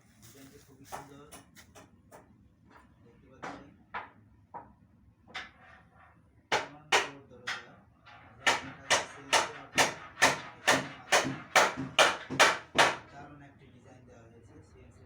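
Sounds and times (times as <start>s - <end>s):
sharp knocks: 8.5s - 13.0s.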